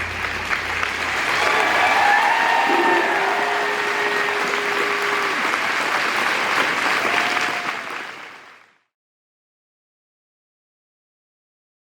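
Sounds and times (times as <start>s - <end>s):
crowd applauding: 0.0s - 8.9s
voices calling out: 1.4s - 5.2s.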